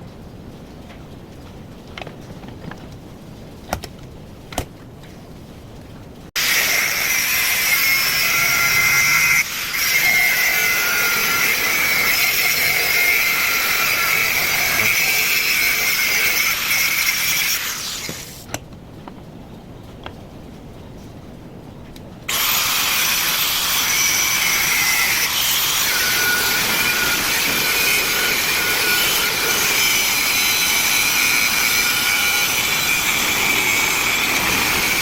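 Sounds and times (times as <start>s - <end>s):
power tool whining: 6.4s - 18.2s, 22.3s - 35.0s.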